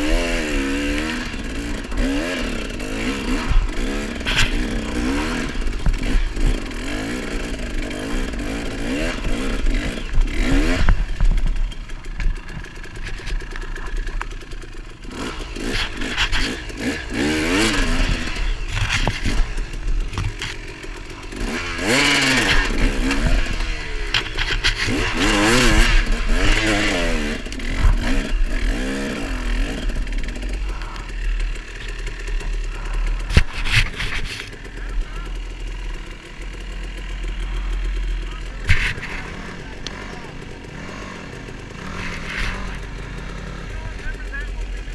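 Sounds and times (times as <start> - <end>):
off-road motorcycle engine revving: 0.0 - 44.9.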